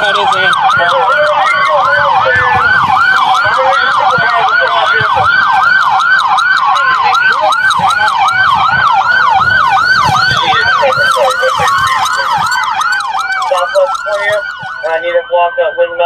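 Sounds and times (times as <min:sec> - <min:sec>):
police siren fast yelp: 0:00.0 - 0:16.0
police siren slow wail: 0:00.0 - 0:16.0.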